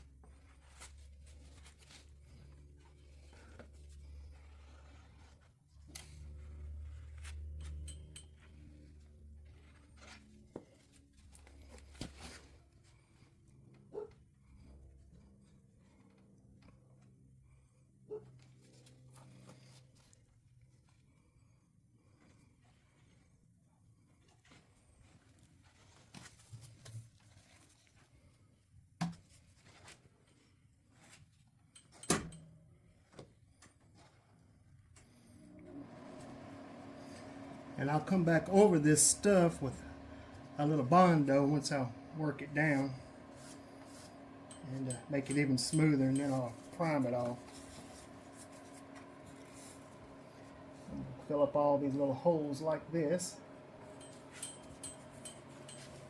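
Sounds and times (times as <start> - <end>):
steady low hum: 35.6 - 56.0.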